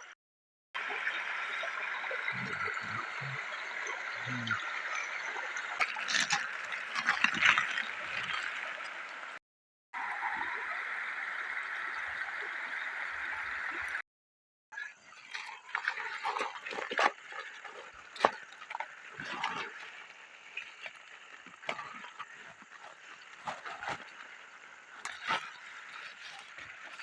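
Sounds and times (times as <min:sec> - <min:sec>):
shallow river water running: 0:00.8 - 0:09.4, 0:10.0 - 0:14.0, 0:14.8 - 0:27.0
splashes and knocks in water: 0:05.8 - 0:08.6.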